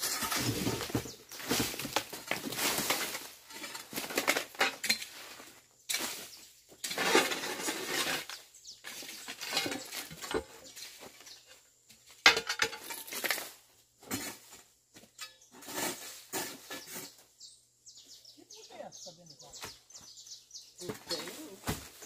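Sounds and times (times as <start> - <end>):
hoe chopping and scraping soil: 0.0 - 11.4, 12.2 - 17.3, 20.8 - 22.0.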